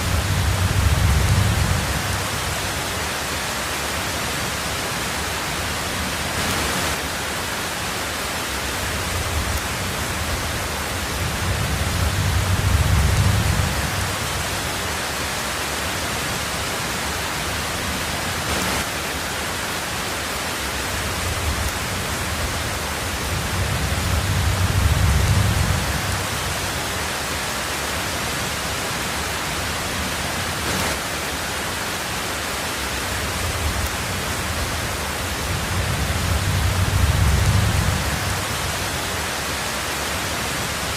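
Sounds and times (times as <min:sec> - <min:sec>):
low rolls of thunder: 0:00.0 - 0:02.9, 0:09.0 - 0:14.8, 0:20.9 - 0:26.8, 0:33.2 - 0:39.2
heavy rain on a tin roof: 0:00.0 - 0:40.9.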